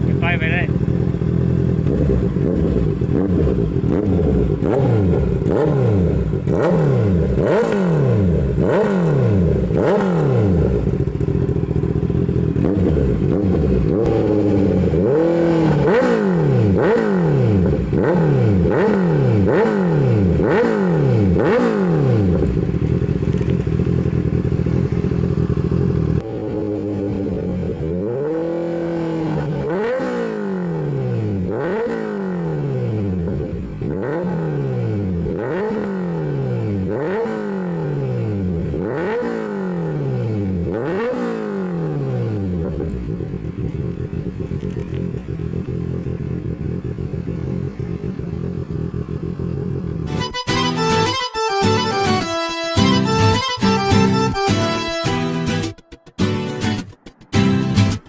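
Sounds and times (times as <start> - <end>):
motorcycle engine revving: 0.0 - 55.9
exhaust crackles and pops: 22.4 - 25.1, 43.0 - 48.0.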